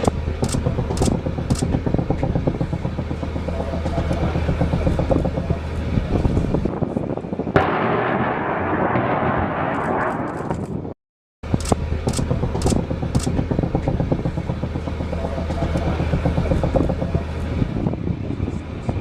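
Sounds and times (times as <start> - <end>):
sharp clicks: 0.0 - 1.7, 11.5 - 13.4
engine drone with low hum: 0.0 - 10.0, 11.4 - 19.0.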